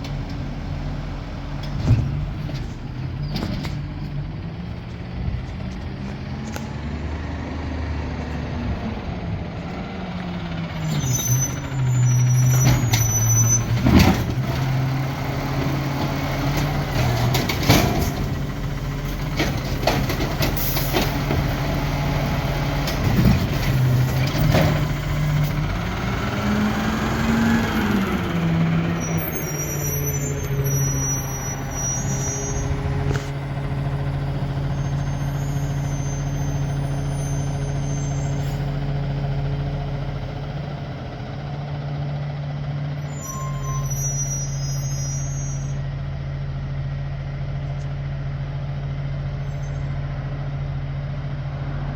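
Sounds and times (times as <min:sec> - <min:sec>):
garbage truck engine revving: 0:06.2 - 0:43.0.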